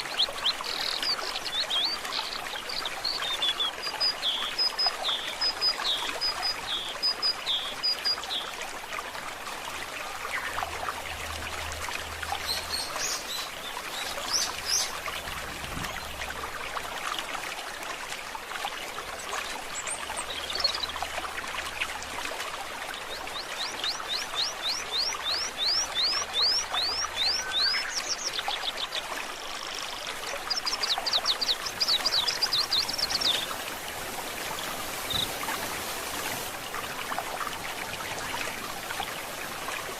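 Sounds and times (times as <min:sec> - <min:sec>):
songbirds calling: 0:00.0 - 0:08.6, 0:09.8 - 0:16.8, 0:19.1 - 0:39.9
stream trickling: 0:00.0 - 0:39.9.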